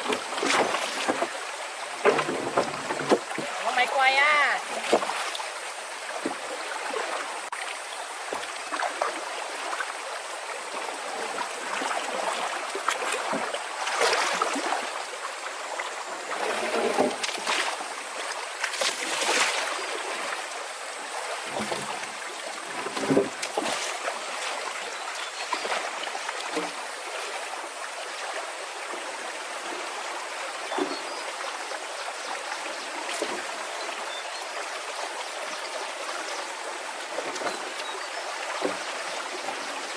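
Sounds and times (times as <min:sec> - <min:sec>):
water splashes or knocks: 0:00.0 - 0:09.9, 0:10.7 - 0:24.8, 0:25.4 - 0:27.4, 0:30.6 - 0:31.2, 0:33.0 - 0:33.6, 0:37.0 - 0:39.9
running water: 0:00.0 - 0:39.9.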